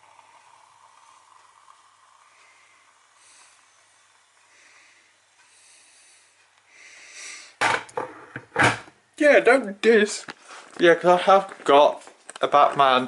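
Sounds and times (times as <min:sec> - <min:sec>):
soft breathing: 0:00.2 - 0:07.6.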